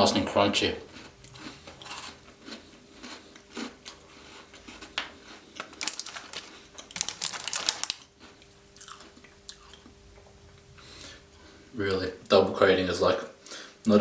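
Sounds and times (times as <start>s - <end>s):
chocolate biscuit crunching: 0.1s - 9.9s.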